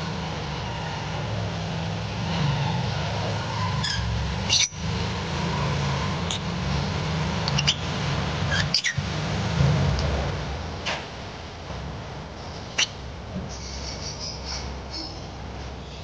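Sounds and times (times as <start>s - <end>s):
lovebirds chirping: 7.5s - 7.9s, 8.5s - 9.0s, 12.4s - 16.0s.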